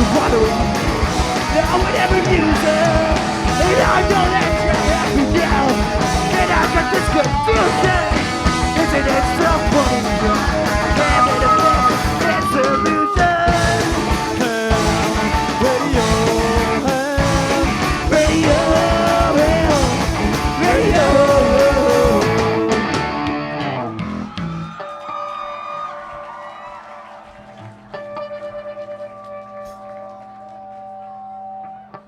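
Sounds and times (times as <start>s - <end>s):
person singing lead: 0.0s - 23.0s
electric guitar: 0.0s - 26.6s, 27.2s - 32.0s
drums: 0.0s - 32.0s.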